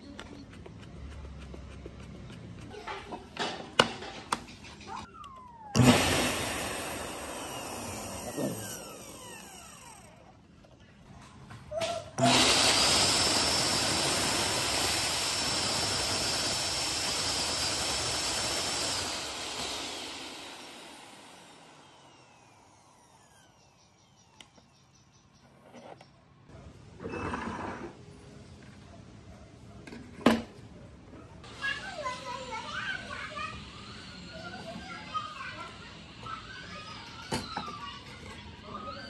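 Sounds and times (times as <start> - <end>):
small electric motor whirring: 5.1 - 10.4, 12.2 - 24.8, 32.1 - 37.4.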